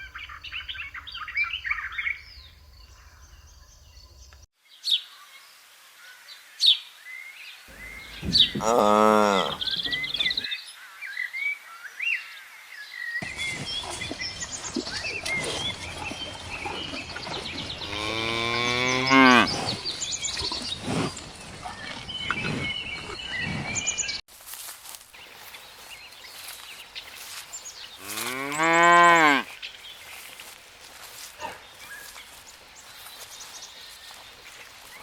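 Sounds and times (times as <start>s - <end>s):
cow mooing: 7.7s - 10.4s, 17.8s - 19.6s, 28.0s - 29.5s
small birds chirping: 7.7s - 10.5s, 13.2s - 35.0s.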